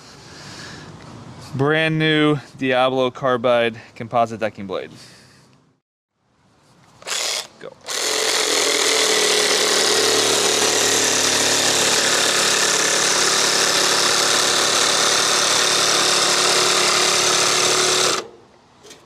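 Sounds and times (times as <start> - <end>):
jigsaw cutting decking board: 7.0 - 18.3.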